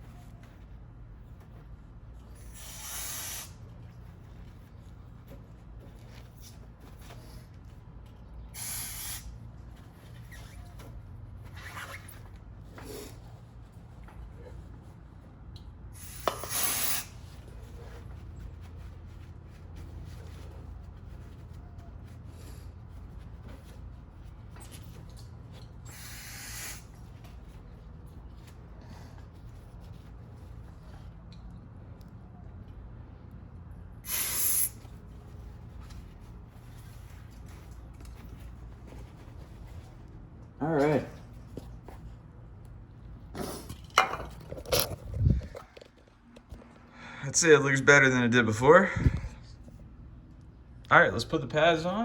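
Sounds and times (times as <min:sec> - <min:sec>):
aerosol spray can hissing: 0:02.4 - 0:03.6, 0:08.5 - 0:09.3, 0:16.0 - 0:17.2, 0:25.9 - 0:26.8, 0:34.0 - 0:34.8
brief hiss: 0:34.1 - 0:34.8.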